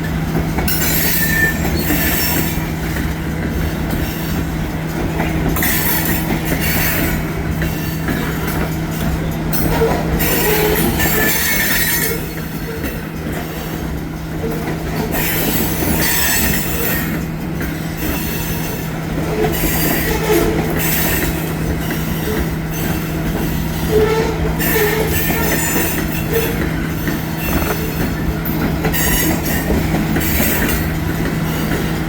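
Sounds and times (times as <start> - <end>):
train wheels rumbling on rails: 0.0 - 32.0
high-pitched wheel squeal: 23.9 - 26.6.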